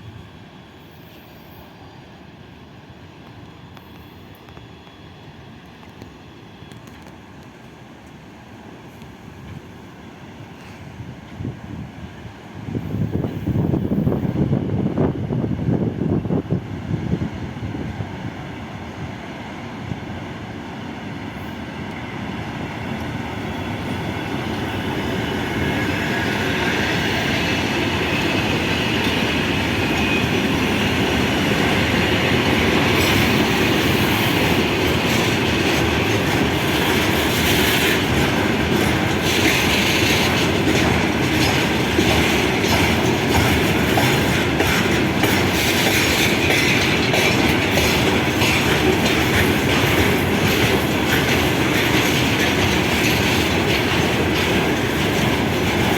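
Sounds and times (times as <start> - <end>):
train passing on rails: 0.0 - 55.9
wheels clacking over rail joints: 23.7 - 55.9.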